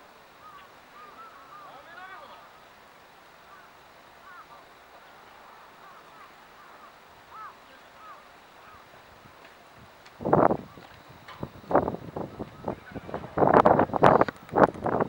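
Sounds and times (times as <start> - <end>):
faint bird chirps: 0.4 - 2.8, 3.4 - 9.0.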